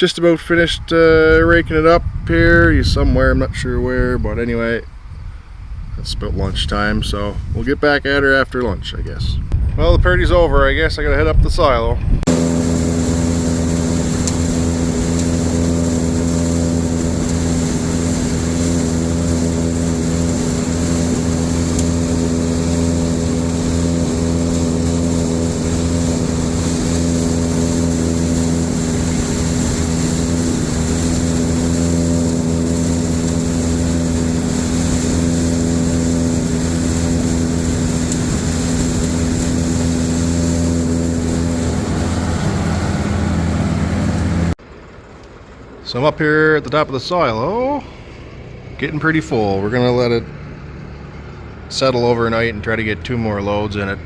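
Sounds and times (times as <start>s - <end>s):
silage blower engine drone: 10.0s - 44.6s, 46.6s - 54.0s.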